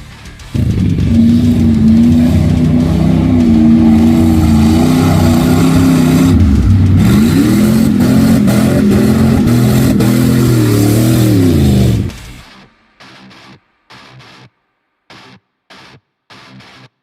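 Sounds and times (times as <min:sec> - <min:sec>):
truck engine revving: 0:00.4 - 0:12.2.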